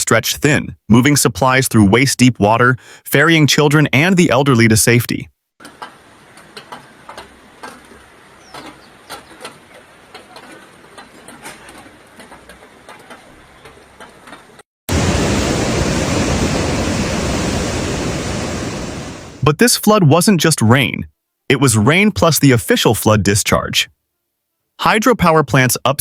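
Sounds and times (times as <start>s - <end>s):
faint knocks and clatter: 5.6s - 14.6s
floodwater rushing: 14.9s - 19.5s.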